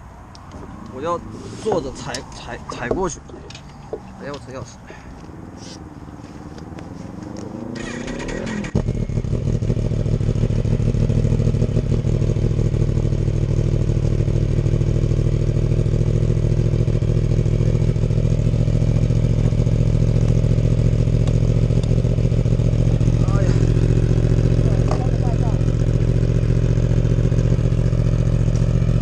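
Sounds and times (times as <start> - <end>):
motorcycle engine cranking: 7.7 - 8.9
motorcycle engine idling: 7.8 - 29.0.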